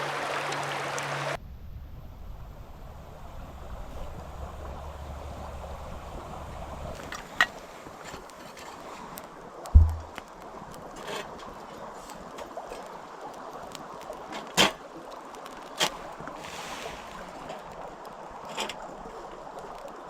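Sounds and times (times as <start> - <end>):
campfire crackling and popping: 6.9 - 20.0.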